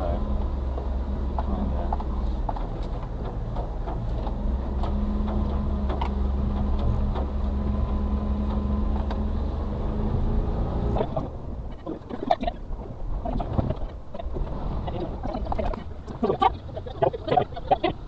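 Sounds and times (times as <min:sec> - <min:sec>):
truck engine running: 0:00.0 - 0:18.0
knocks and rattles: 0:00.4 - 0:09.2.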